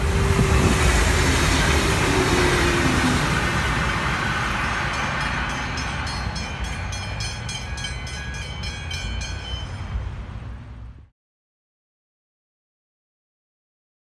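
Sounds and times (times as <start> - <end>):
train rumble and rail noise: 0.0 - 11.1.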